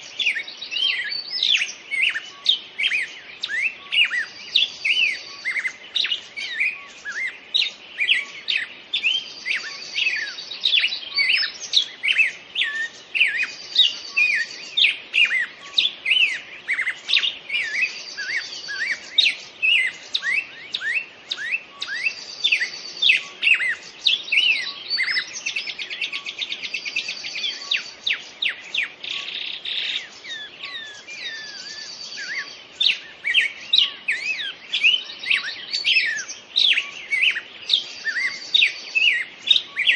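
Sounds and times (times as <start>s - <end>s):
songbirds chirping chorus: 0.0s - 39.9s
bird high trill: 11.1s - 39.9s.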